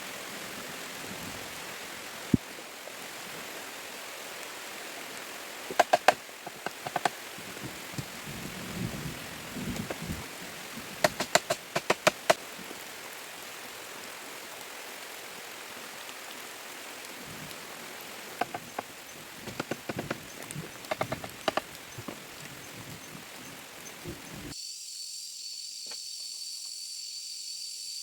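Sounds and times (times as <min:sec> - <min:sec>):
steady rain-like hiss: 0:00.0 - 0:28.0
sharp knocks: 0:05.7 - 0:07.1, 0:11.0 - 0:12.4.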